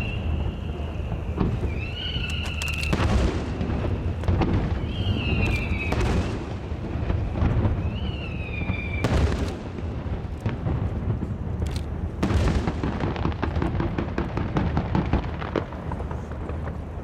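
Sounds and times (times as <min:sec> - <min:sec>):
firework whistles: 0:00.0 - 0:09.7
fireworks booming and crackling: 0:00.0 - 0:17.0.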